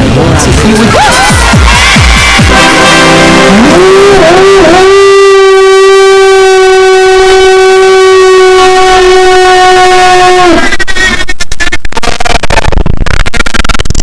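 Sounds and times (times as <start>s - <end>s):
loud horn-like tone: 1.8s - 11.8s
rapid stutter of clicks: 11.1s - 14.0s.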